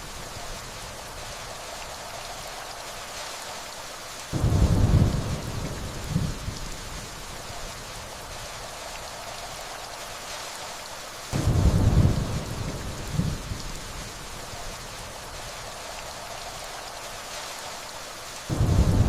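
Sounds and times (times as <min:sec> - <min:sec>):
steady rainfall: 0:00.0 - 0:19.0
distant thunder rolling: 0:04.4 - 0:07.0, 0:11.4 - 0:13.7, 0:18.5 - 0:19.0.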